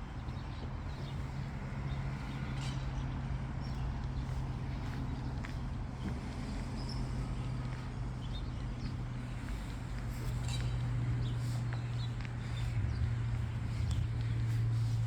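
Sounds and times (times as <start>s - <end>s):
footsteps walking: 8.6s - 15.0s.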